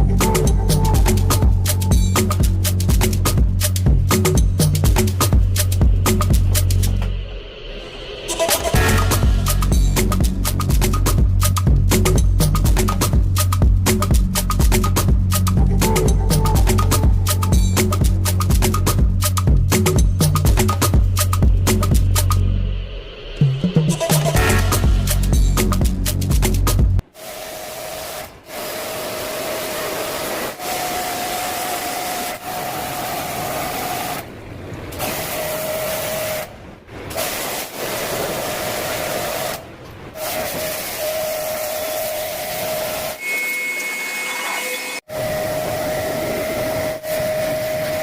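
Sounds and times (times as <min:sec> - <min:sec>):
pressure washer spray hissing: 0:27.2 - 0:34.2.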